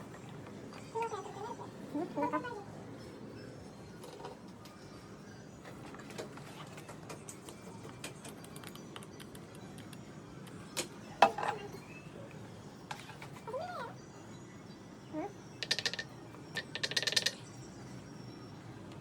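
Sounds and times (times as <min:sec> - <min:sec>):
small parts clicking and tapping: 0:06.0 - 0:11.5, 0:15.6 - 0:17.5.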